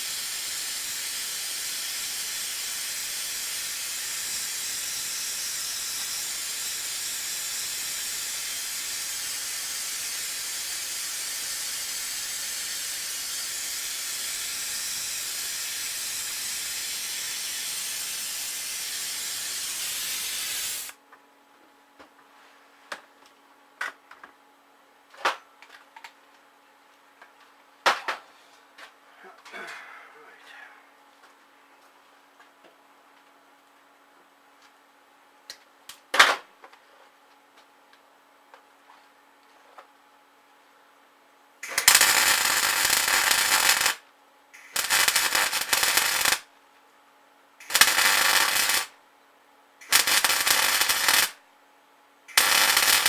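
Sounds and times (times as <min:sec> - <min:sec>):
loud steady hiss: 0:00.0 - 0:21.0, 0:41.6 - 0:44.0, 0:44.6 - 0:46.5, 0:47.6 - 0:49.0, 0:49.8 - 0:51.4, 0:52.3 - 0:53.0.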